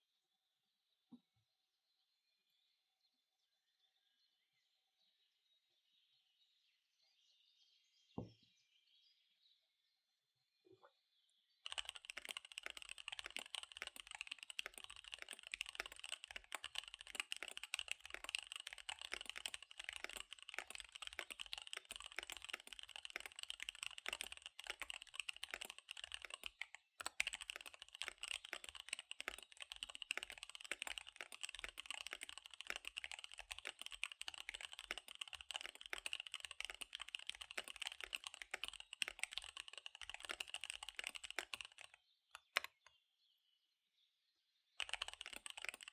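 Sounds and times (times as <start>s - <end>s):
fast typing on keyboard: 11.6s - 42.8s, 44.8s - 45.9s.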